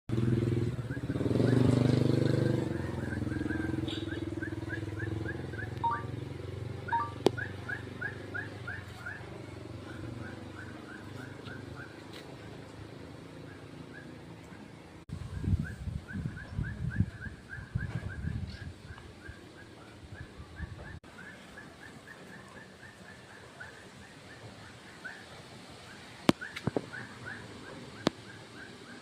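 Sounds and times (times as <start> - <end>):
motorcycle passing: 0.1 - 15.0.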